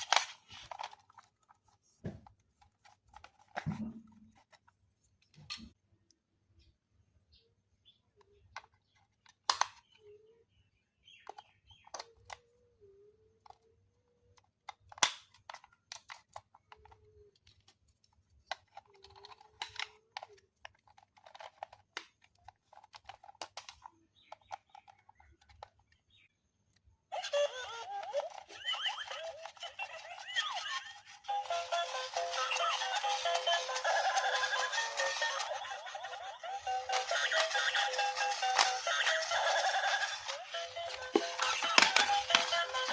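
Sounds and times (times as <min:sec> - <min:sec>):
toys and packaging being handled: 0:00.0 - 0:42.9
music: 0:31.0 - 0:35.9, 0:36.6 - 0:42.9.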